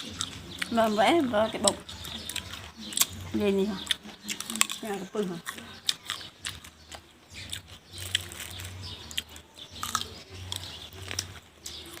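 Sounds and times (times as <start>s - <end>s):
person chewing crisp fruit: 0.0s - 12.0s
sharp crunches: 5.4s - 12.0s.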